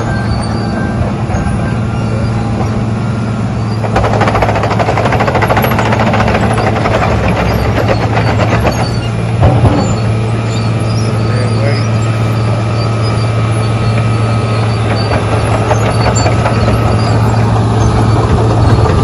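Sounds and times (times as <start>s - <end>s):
diesel engine humming: 0.0s - 19.0s
rapid mechanical clatter: 3.8s - 10.0s, 14.8s - 19.0s.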